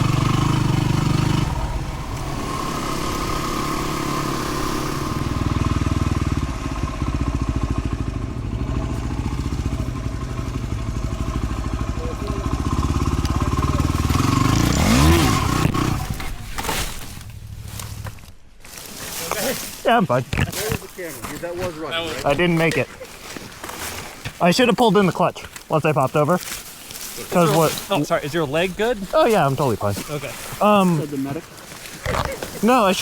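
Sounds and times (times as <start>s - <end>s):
motorcycle engine revving: 0.0s - 18.3s.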